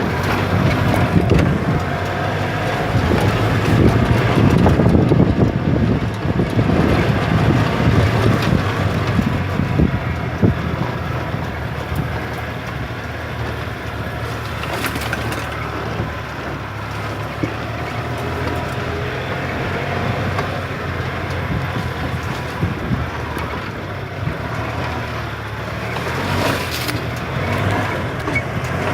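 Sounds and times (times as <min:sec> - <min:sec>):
cart body knocking and rattling: 0:00.0 - 0:28.9
golf cart motor hum: 0:00.0 - 0:28.9.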